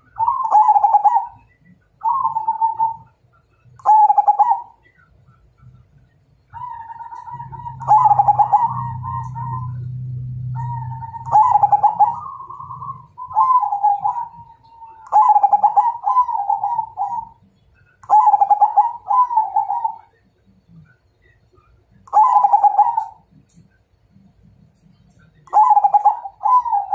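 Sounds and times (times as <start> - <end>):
dove cooing: 0.0 - 3.2, 3.8 - 5.1, 6.5 - 17.4, 18.0 - 20.2, 22.1 - 23.5, 25.4 - 26.9
low steady hum: 0.0 - 26.9.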